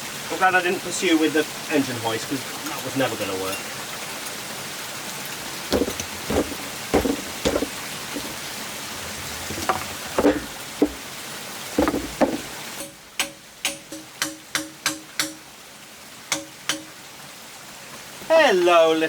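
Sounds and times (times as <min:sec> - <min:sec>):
hammer striking metal chisel: 0:05.7 - 0:08.4, 0:09.5 - 0:11.0, 0:11.8 - 0:15.4.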